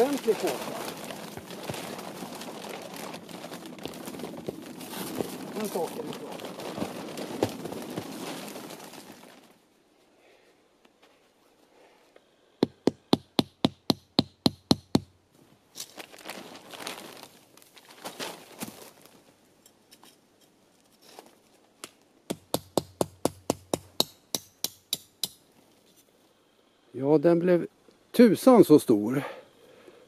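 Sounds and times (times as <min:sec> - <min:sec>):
rustling: 0:00.0 - 0:10.1, 0:15.4 - 0:21.8.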